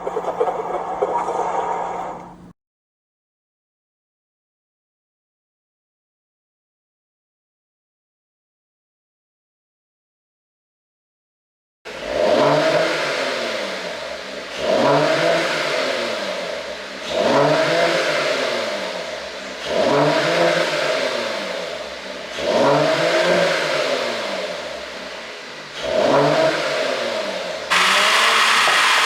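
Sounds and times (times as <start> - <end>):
car engine revving: 11.9 - 29.0.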